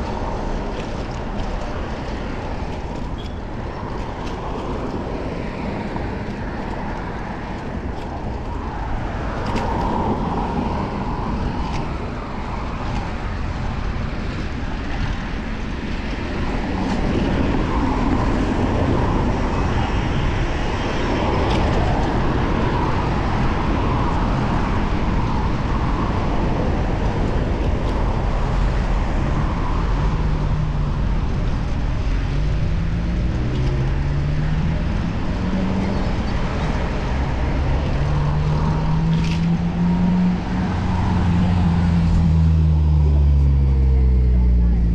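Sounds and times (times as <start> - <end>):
road traffic: 0.0 - 44.9
wind rush: 0.0 - 44.9.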